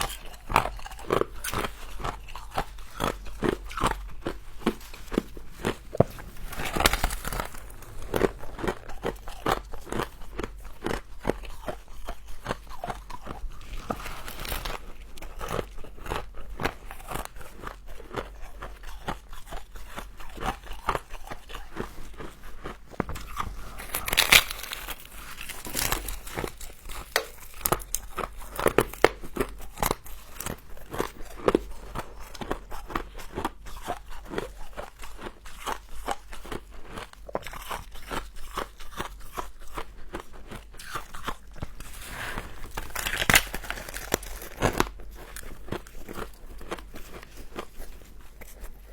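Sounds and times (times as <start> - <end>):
chewing crunchy frost: 0.0 - 48.9.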